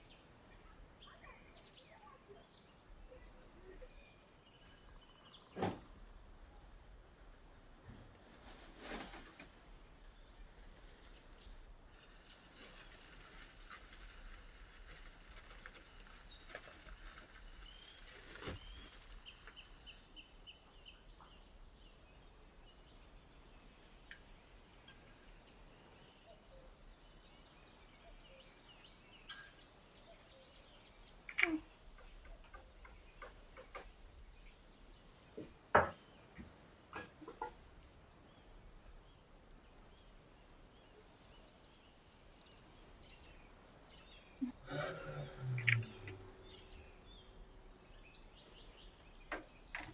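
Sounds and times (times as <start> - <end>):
soft hiss: 6.1 - 20.1.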